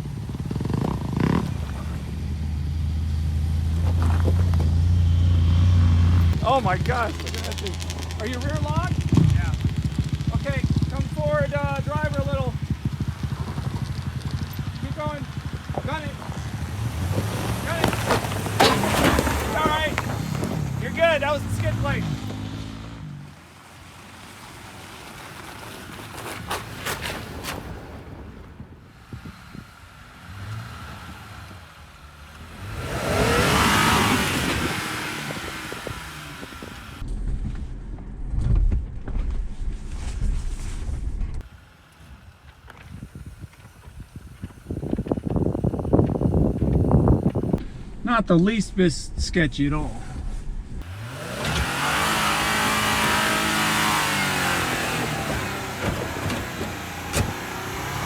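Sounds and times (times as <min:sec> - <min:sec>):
engine revving hard: 0:00.0 - 0:23.5, 0:28.9 - 0:37.0, 0:50.7 - 0:58.0
low rumble: 0:36.9 - 0:41.5, 0:44.0 - 0:50.9.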